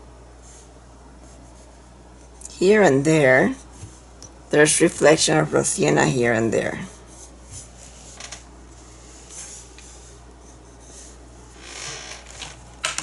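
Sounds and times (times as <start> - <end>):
steady low hum: 0.0 - 13.0
paintbrush strokes on canvas: 0.4 - 2.5, 6.9 - 11.6.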